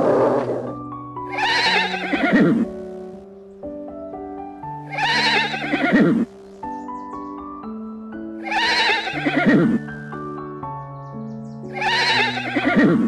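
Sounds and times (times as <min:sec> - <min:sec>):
background music sustained notes: 0:00.0 - 0:13.0
animal's quavering cry: 0:01.3 - 0:02.7, 0:04.9 - 0:06.3, 0:08.4 - 0:09.8, 0:11.7 - 0:13.0.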